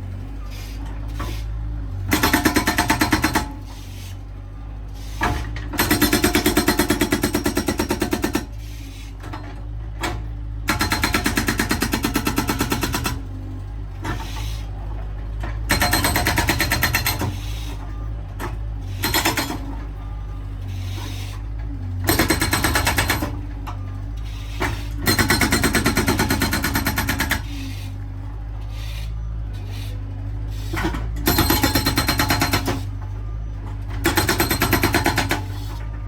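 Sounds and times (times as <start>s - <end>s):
skid steer engine running: 0.0s - 36.0s
hydraulic breaker hammering: 10.7s - 13.2s, 15.7s - 17.4s, 22.0s - 23.4s, 24.6s - 27.5s, 30.7s - 32.9s, 33.9s - 35.6s.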